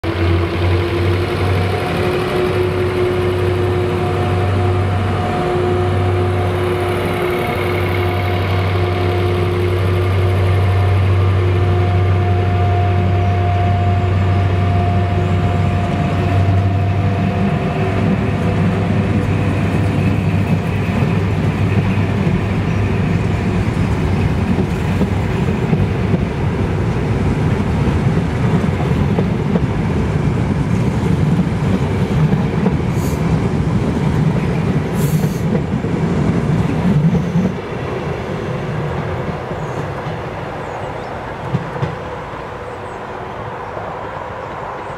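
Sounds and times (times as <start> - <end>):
coach wheels rumbling on rails: 0.0 - 44.9
diesel engines humming: 0.0 - 44.9.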